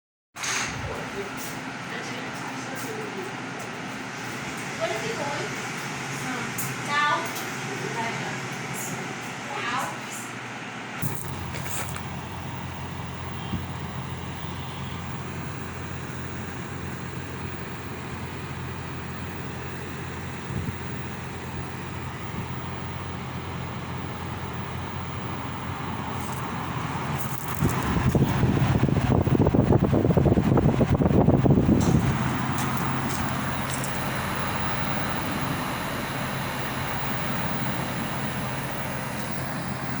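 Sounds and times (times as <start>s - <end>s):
rush of fan air: 0.4s - 14.3s, 15.3s - 40.0s
air conditioner hum: 0.4s - 40.0s
wind rumble on microphone: 20.5s - 21.0s, 25.6s - 36.0s.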